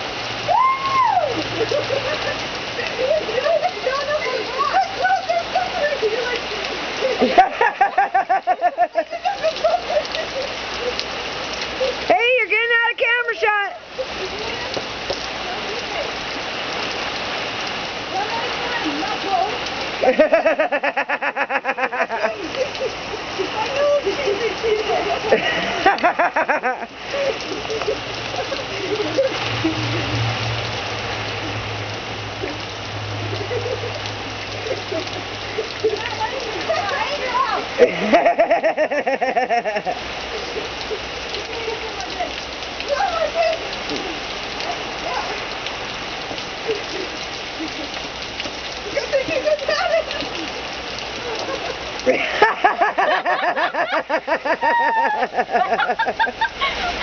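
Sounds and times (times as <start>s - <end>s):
rain falling and splashing: 0.0s - 57.0s
high-pitched laughter: 1.3s - 12.1s, 20.0s - 30.0s, 33.3s - 44.2s, 48.8s - 57.0s.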